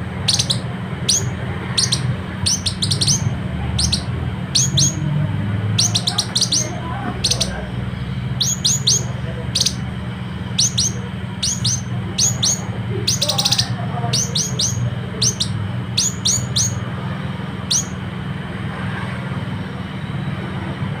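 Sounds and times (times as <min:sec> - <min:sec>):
steady low hum: 0:00.0 - 0:21.0
bird calling sharp high notes: 0:00.2 - 0:05.1, 0:05.7 - 0:16.9, 0:17.6 - 0:18.1.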